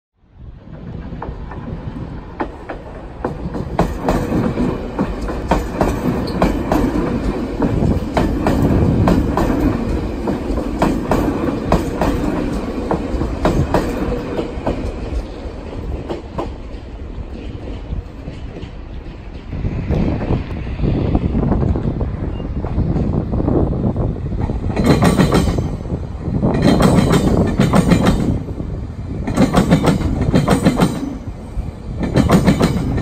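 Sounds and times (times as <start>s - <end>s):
train rumble: 0.2s - 33.0s
wheels clacking over rail joints: 0.6s - 20.4s, 24.3s - 28.5s, 29.1s - 33.0s.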